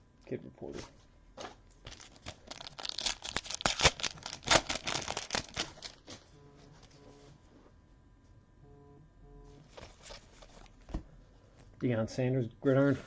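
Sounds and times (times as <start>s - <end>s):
cards and wrapper crinkling: 1.8s - 6.2s.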